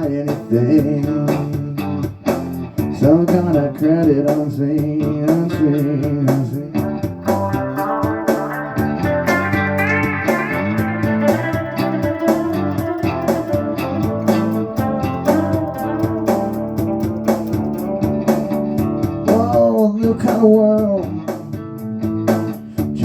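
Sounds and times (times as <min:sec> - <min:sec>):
rock blues guitars and bass: 0:00.0 - 0:23.0
steady drum beat: 0:00.0 - 0:23.0.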